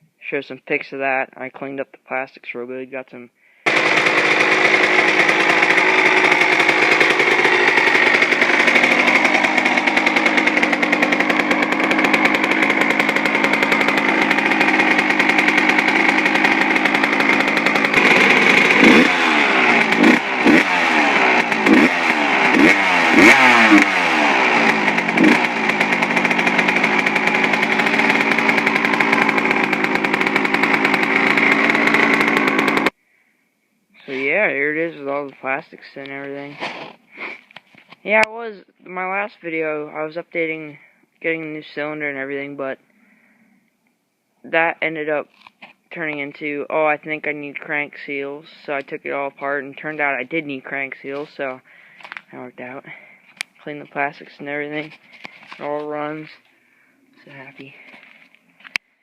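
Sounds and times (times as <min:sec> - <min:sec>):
two-stroke engine revving: 0:03.7 - 0:33.0, 0:45.9 - 0:56.5.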